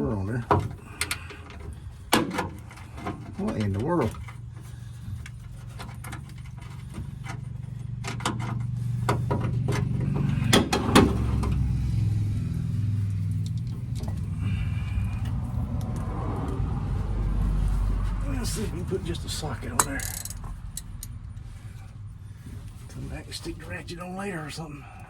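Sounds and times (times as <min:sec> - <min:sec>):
low rumble: 0:08.7 - 0:24.0
metal tools clinking and knocking: 0:19.7 - 0:21.2.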